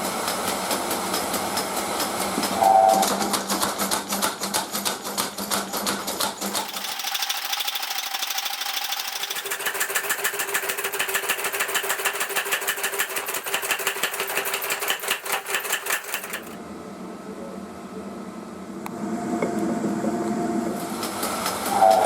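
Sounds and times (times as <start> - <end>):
power hammer forging iron: 6.2 - 16.6.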